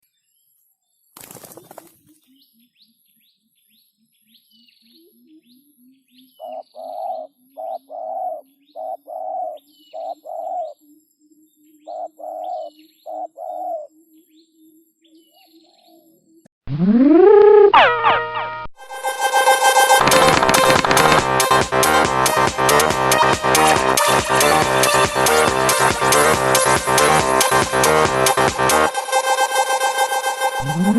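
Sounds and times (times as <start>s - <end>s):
small birds chirping: 0.1s - 16.4s, 20.0s - 21.3s
doves cooing: 6.4s - 10.8s, 11.9s - 13.9s
brief rustling: 20.0s - 21.3s.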